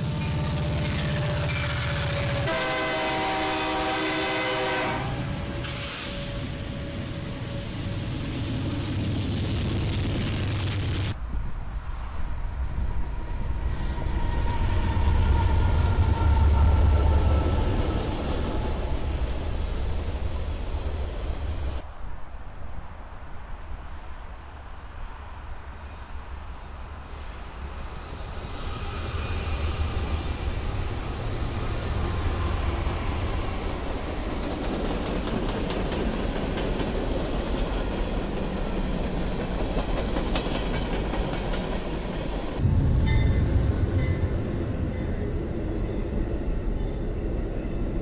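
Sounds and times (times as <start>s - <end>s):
locomotive air horn: 0.2s - 6.5s.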